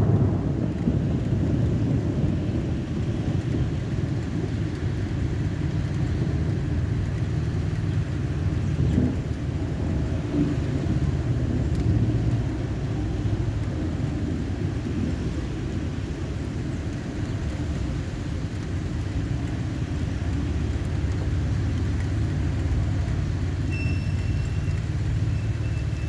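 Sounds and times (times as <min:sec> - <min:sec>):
thunder rumbling: 0:00.0 - 0:26.0.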